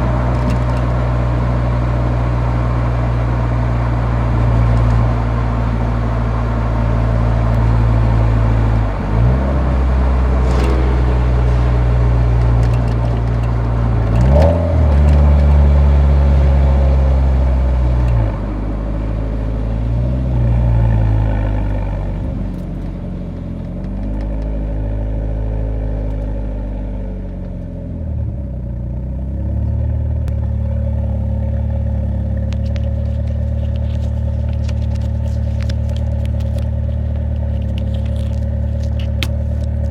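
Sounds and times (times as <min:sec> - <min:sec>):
car exhaust engine note: 0:00.0 - 0:22.6.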